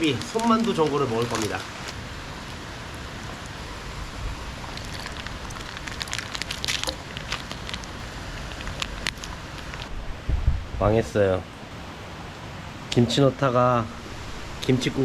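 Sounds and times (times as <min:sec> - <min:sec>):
steady rain falling: 0:00.0 - 0:10.4.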